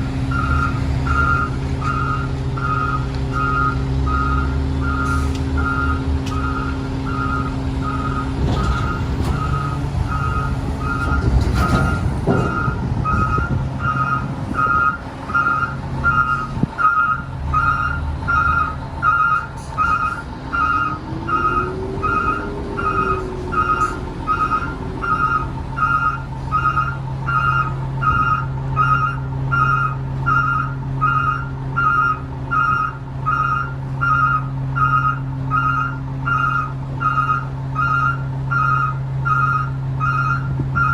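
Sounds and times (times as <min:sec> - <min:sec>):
garbage truck diesel engine: 0:00.0 - 0:40.9
backup alarm beeping: 0:00.3 - 0:40.9.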